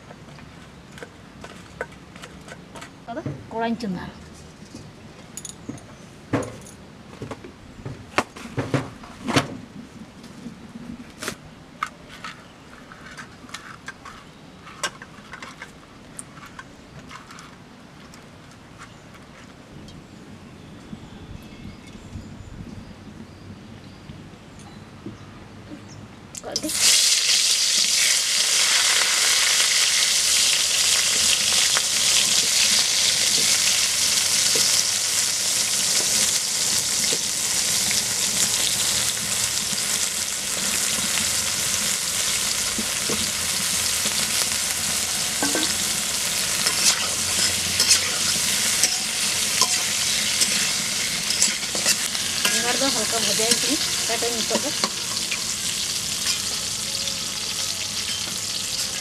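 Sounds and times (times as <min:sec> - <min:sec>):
food sizzling in hot oil: 0:26.6 - 0:59.0
metal spatula scraping pan: 0:44.0 - 0:56.7.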